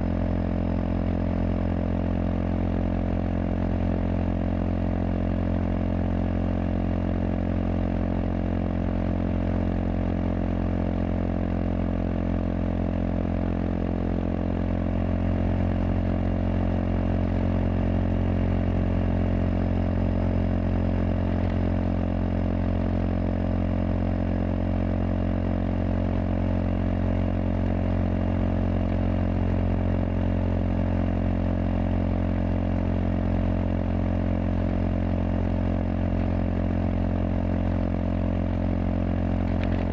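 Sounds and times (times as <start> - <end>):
single-cylinder motorcycle engine running: 0.0 - 39.9.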